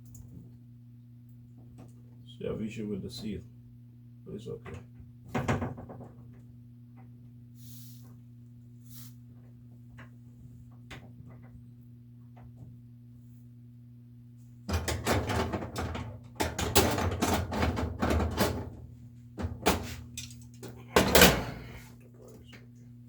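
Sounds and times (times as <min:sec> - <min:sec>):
knocking and rattling: 0:04.7 - 0:06.4, 0:14.7 - 0:18.8.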